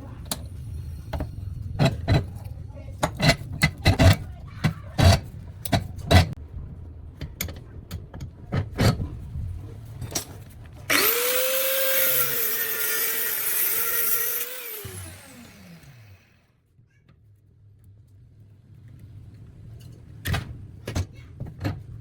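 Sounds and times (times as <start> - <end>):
angle grinder motor whining: 10.9 - 16.4.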